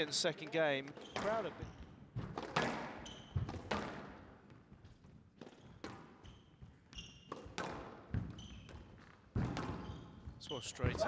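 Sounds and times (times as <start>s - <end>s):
squash ball hits echoing: 2.2s - 4.3s, 7.3s - 8.4s, 9.3s - 9.9s
shoes squeaking on wooden floor: 8.2s - 11.0s.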